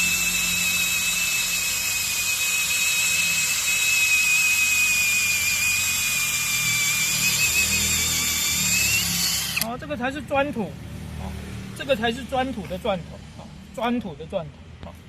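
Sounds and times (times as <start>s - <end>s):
cordless drill whining: 0.0s - 9.7s.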